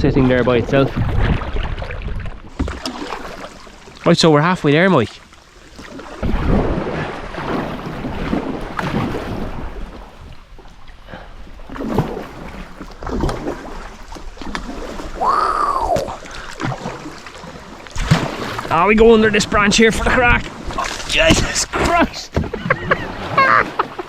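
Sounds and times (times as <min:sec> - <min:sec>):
wind on microphone: 0:00.0 - 0:02.6, 0:06.1 - 0:10.7
paddle splashing water: 0:00.2 - 0:24.0.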